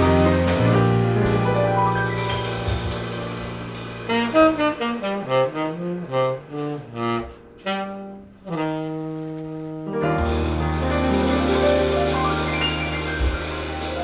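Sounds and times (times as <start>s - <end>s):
jazz band chord: 0.0s - 14.0s
saxophone playing: 4.0s - 10.0s.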